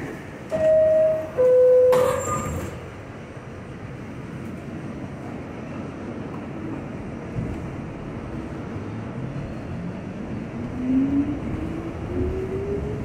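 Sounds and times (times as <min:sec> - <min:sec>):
subway car running noise: 0:00.0 - 0:13.0
two-tone door chime: 0:00.5 - 0:02.6.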